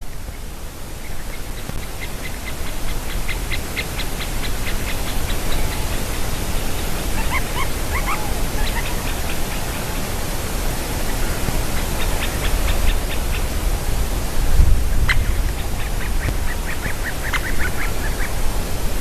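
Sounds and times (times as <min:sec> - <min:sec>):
low rumbling hiss: 0:00.0 - 0:19.0
woodpeckers calling: 0:00.1 - 0:13.7, 0:14.9 - 0:18.4.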